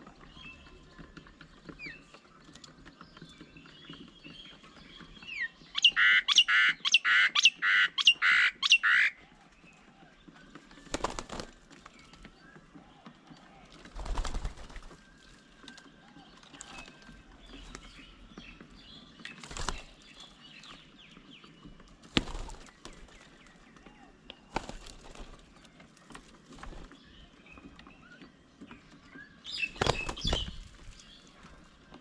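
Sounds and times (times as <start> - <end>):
bird wings flapping: 10.4 - 27.8, 29.5 - 32.0.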